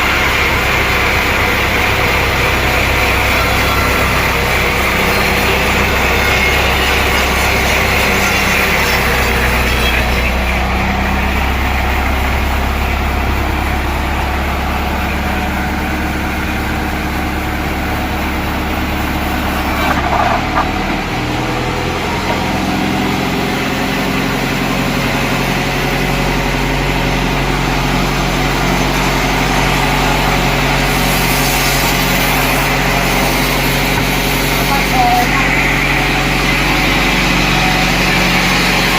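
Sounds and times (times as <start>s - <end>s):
heavy engine running: 0.0s - 38.9s.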